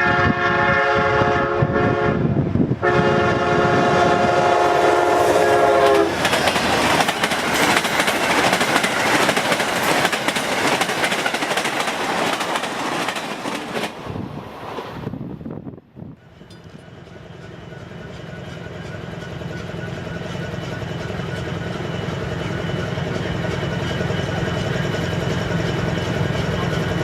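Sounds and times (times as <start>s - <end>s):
locomotive air horn: 0.0s - 6.2s
train wheels rumbling on rails: 0.0s - 27.0s.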